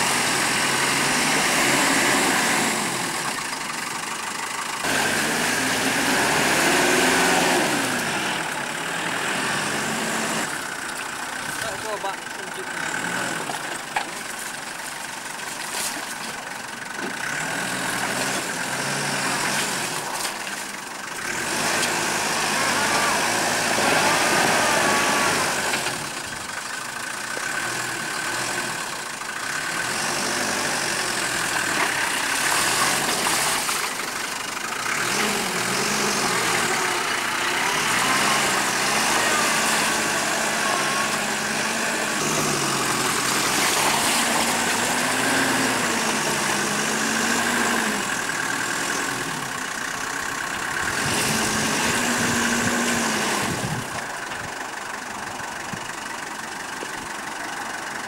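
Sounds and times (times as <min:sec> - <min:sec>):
engine pulling at low revs: 0:00.0 - 0:58.0.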